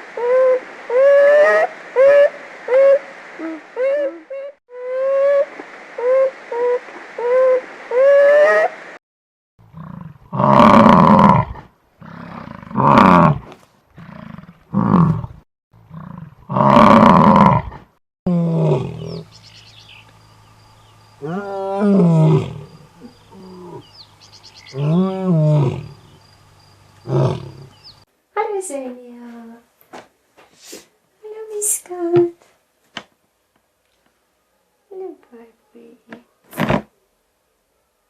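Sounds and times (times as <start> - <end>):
big cat roaring: 9.7 - 19.3, 21.2 - 23.9, 24.7 - 26.3, 27.0 - 27.8.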